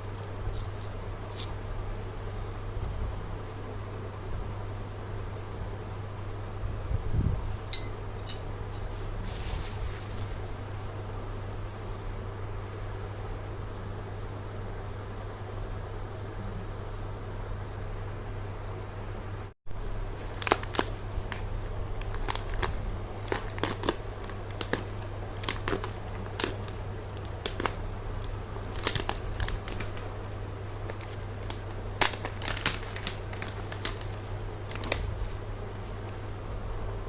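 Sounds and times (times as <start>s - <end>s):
steady low hum: 0.0s - 37.0s
packaging crinkling and rustling: 8.9s - 10.6s, 20.1s - 36.2s.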